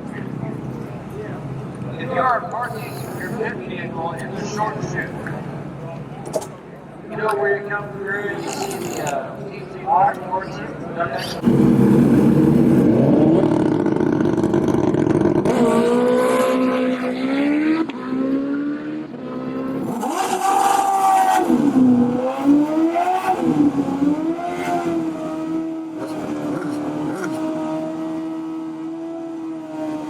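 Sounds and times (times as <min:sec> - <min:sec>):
motorcycle engine revving loud: 0:11.4 - 0:30.0.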